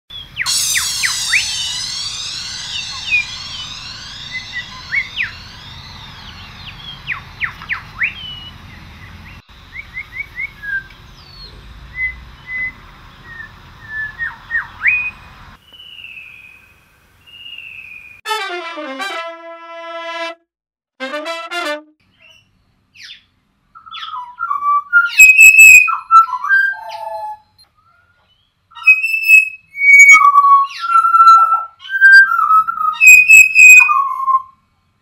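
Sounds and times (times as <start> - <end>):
birds whistling: 0.1 - 16.7, 17.3 - 18.2, 22.2 - 27.7, 28.3 - 34.6
high bird twittering: 0.2 - 15.2, 22.1 - 27.4, 28.7 - 34.5.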